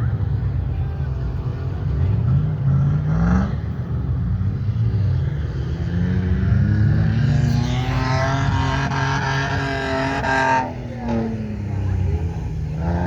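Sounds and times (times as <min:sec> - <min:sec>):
car engine revving hard: 0:05.7 - 0:13.0.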